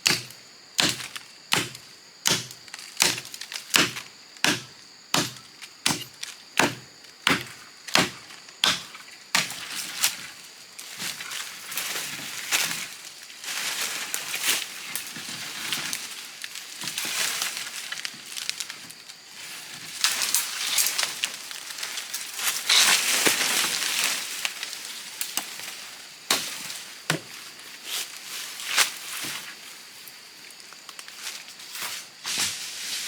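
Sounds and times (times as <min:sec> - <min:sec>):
leaves and branches rustling: 0:08.2 - 0:33.0.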